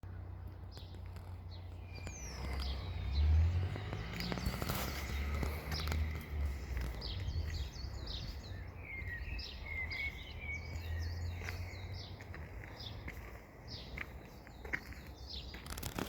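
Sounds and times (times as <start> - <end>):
birds chirping: 0.0 - 16.0
steady low rumble: 1.2 - 12.6.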